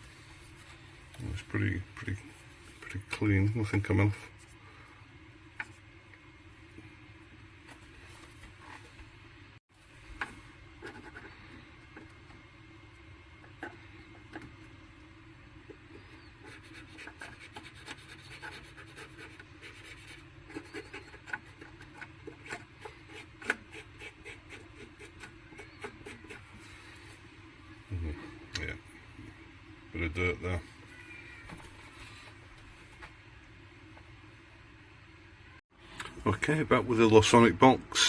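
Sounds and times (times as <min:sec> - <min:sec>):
rubbing and scratching: 0:10.2 - 0:12.2, 0:15.7 - 0:27.2.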